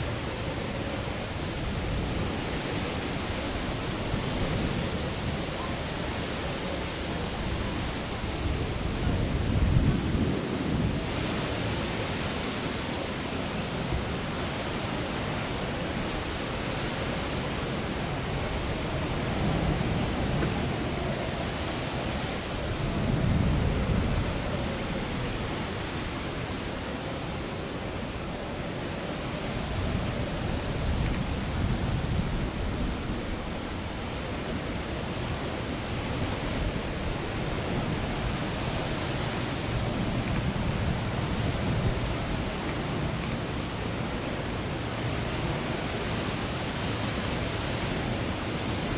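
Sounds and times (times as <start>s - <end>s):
gusty wind buffeting microphone: 0.0s - 12.8s, 13.6s - 48.9s.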